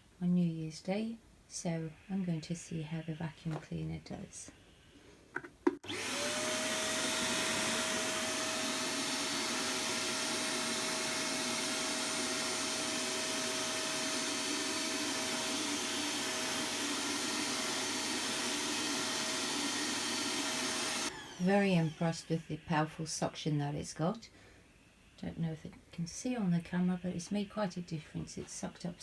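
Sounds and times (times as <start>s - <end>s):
vacuum cleaner running: 5.8s - 22.6s.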